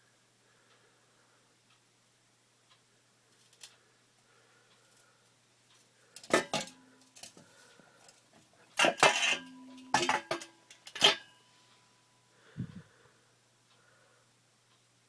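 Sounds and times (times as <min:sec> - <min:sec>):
metal exhaust parts clanking: 0:06.2 - 0:07.3, 0:08.8 - 0:11.3.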